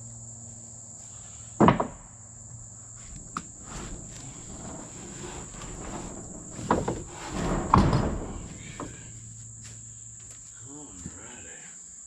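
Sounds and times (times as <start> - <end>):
insects droning: 0.0 - 12.0
sharp knocks: 1.6 - 2.0, 3.3 - 9.3
scraping rush: 3.0 - 9.6.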